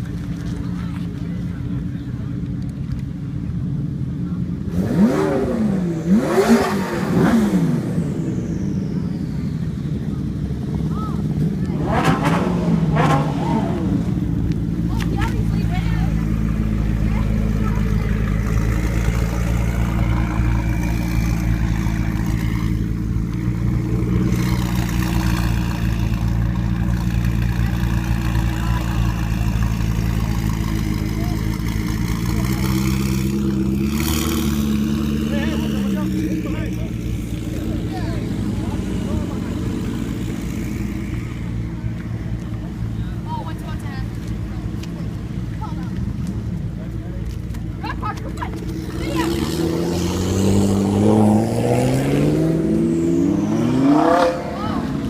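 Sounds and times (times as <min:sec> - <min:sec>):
sports car engine revving: 0:04.6 - 0:43.0, 0:44.0 - 0:55.0.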